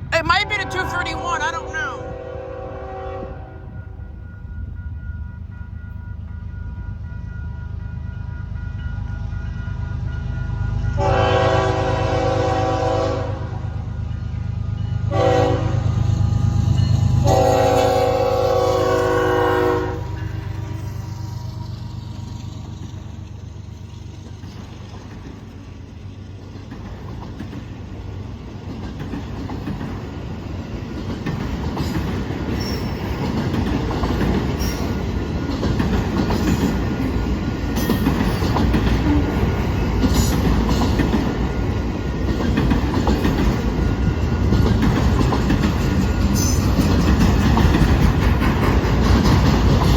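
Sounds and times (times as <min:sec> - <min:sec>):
diesel locomotive rumble: 0:00.0 - 0:49.9
train horn: 0:00.4 - 0:04.2, 0:11.0 - 0:14.0, 0:15.0 - 0:21.6
train wheels clacking on rails: 0:15.2 - 0:49.9.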